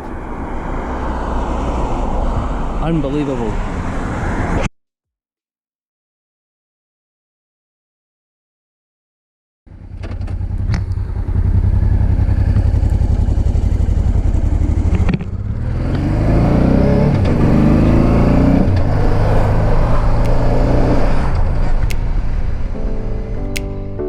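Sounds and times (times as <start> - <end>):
motorcycle engine accelerating: 9.7 - 22.6.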